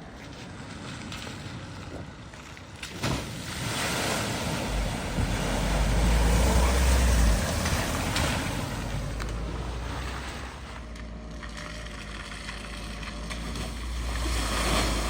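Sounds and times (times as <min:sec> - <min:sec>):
vehicle splashing through water: 0:00.0 - 0:15.0
deep rumble: 0:03.6 - 0:15.0.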